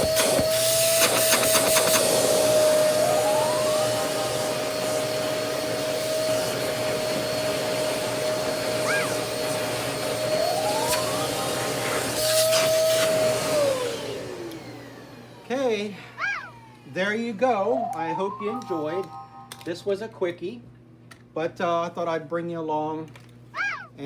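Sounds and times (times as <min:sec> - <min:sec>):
portable vacuum motor whine: 0:00.0 - 0:17.4.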